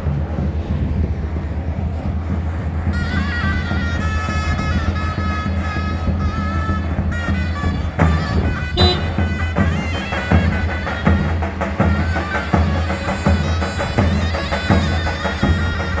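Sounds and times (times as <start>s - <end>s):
reedy wind instrument melody: 2.9s - 16.0s
bass drum beating: 6.0s - 12.0s.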